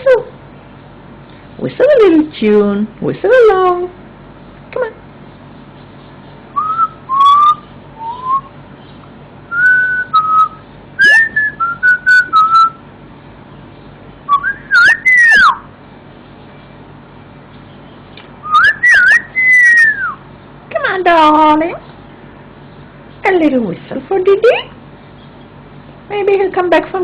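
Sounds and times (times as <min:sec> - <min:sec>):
person whistling a tune: 0:06.6 - 0:08.5, 0:09.5 - 0:12.8.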